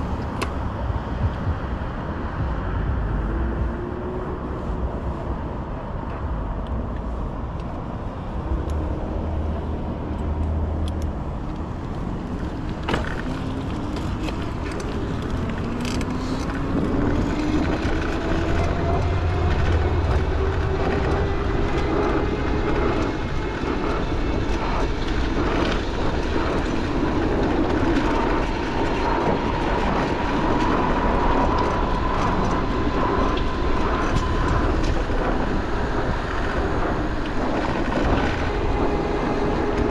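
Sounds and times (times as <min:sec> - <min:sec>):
street traffic: 0:00.0 - 0:39.9
streetcar motors whining: 0:00.0 - 0:39.9
wind on microphone: 0:00.0 - 0:39.9.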